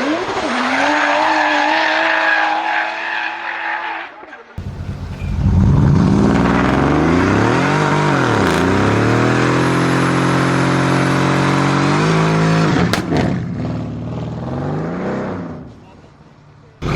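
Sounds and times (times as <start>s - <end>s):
exhaust cracks: 4.6s - 9.6s
sports car engine revving: 4.6s - 13.3s.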